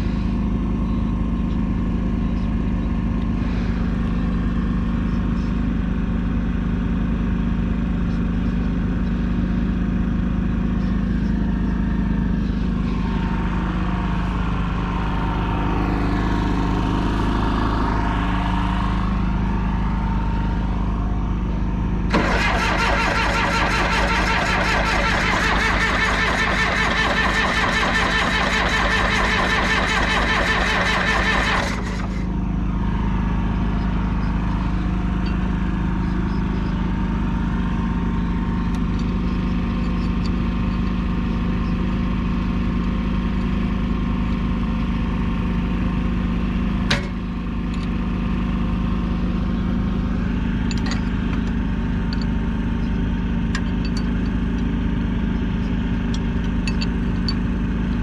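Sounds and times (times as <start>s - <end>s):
bulldozer diesel engine idling: 0.0s - 58.0s.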